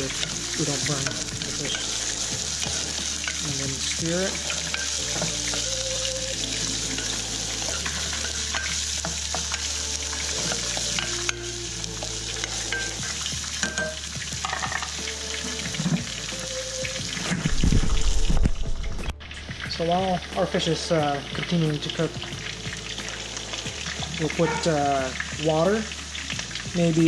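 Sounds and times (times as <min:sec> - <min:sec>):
utensil scraping a pan: 0:00.0 - 0:11.4
fish frying in a skillet: 0:00.0 - 0:27.0
onion and garlic sizzling in oil: 0:00.0 - 0:27.0.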